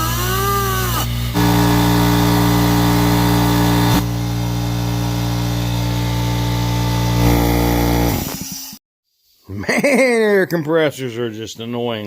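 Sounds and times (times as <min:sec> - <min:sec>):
air compressor humming: 0:01.1 - 0:08.4.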